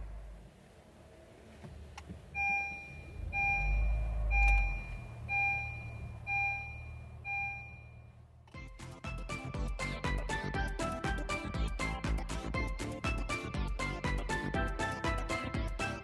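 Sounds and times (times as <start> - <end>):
low engine rumble: 0.0 - 15.8
car warning chime beeping: 2.3 - 8.8.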